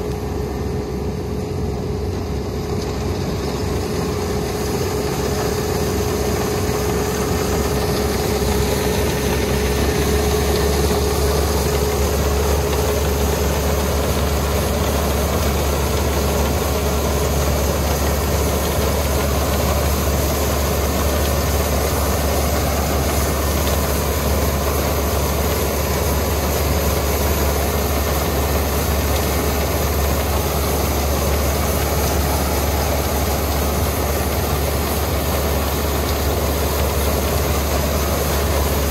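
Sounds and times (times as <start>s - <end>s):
harvester engine running: 0.0s - 38.9s
steady whine: 0.0s - 38.9s.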